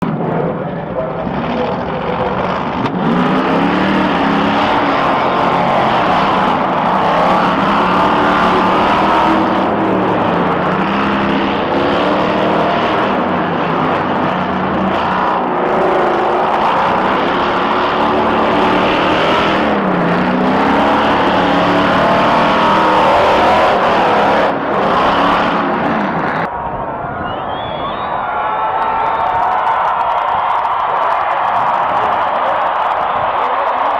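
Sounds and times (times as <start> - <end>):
engines revving: 0.0 - 26.8.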